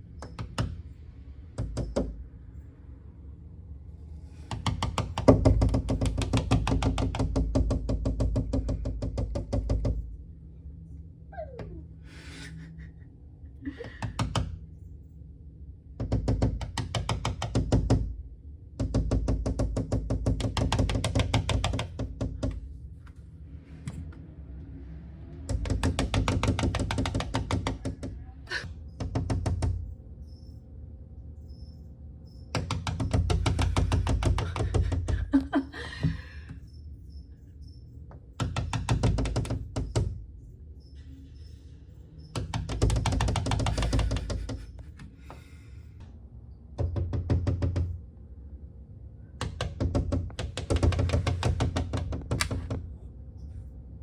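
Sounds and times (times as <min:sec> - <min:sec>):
bird tapping its beak: 0:42.4 - 0:45.4.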